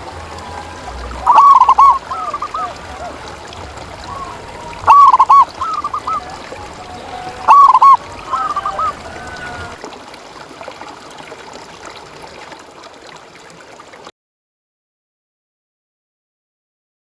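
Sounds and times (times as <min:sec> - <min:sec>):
dove cooing: 0:00.0 - 0:09.8.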